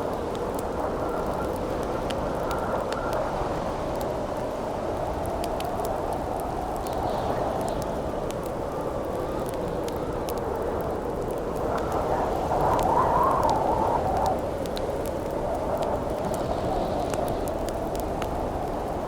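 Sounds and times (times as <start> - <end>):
campfire crackling: 0.0 - 19.0
wind howling: 0.0 - 19.0.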